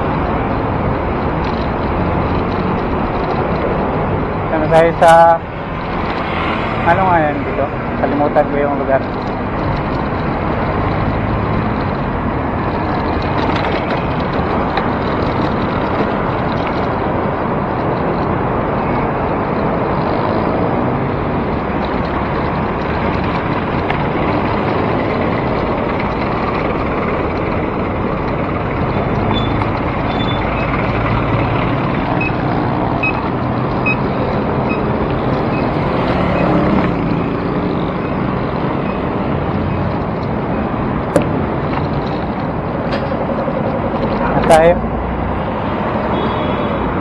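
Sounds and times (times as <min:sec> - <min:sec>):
road traffic: 0:00.0 - 0:47.0.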